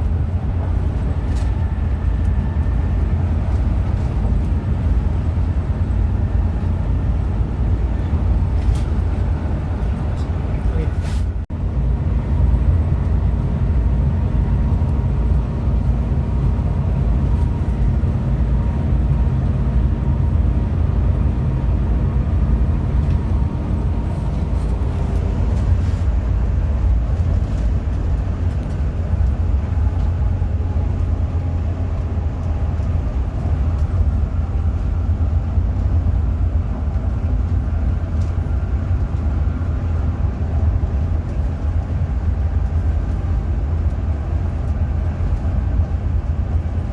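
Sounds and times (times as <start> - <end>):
bus engine and road rumble: 0.0 - 46.9
pitched engine drone: 11.6 - 41.9.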